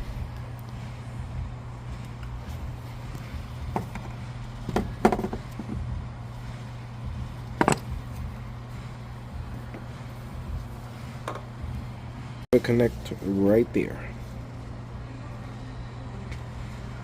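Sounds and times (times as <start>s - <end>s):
steady low hum: 0.0s - 17.0s
tools clicking and knocking: 7.6s - 8.0s.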